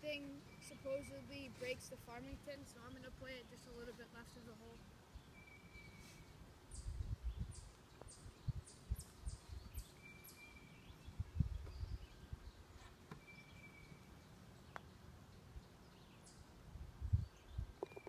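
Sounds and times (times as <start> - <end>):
wind buffeting microphone: 6.7 - 9.9, 11.0 - 12.6, 16.8 - 18.0.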